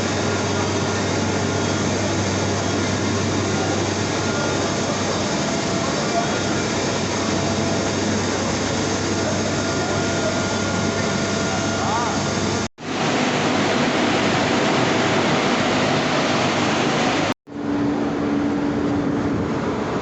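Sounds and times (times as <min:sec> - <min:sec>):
bus interior engine drone: 0:15.5 - 0:20.0.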